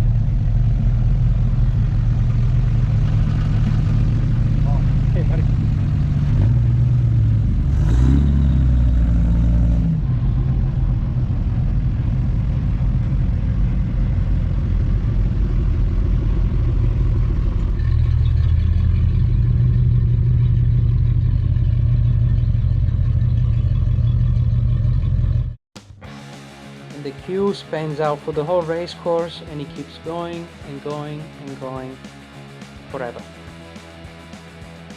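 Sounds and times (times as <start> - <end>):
car engines rumbling: 0.0 - 25.6.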